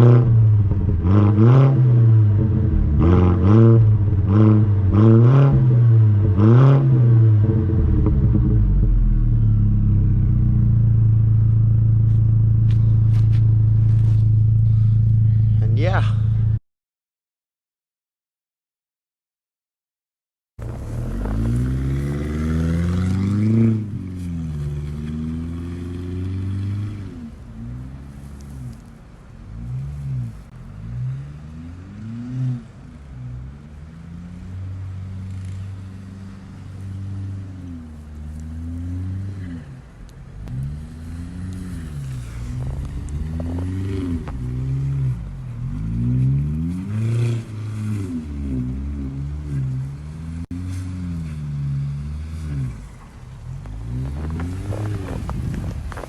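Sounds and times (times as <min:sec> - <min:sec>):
car engine revving: 0:00.0 - 0:16.6, 0:20.6 - 0:56.0
car engine idling: 0:07.3 - 0:16.6.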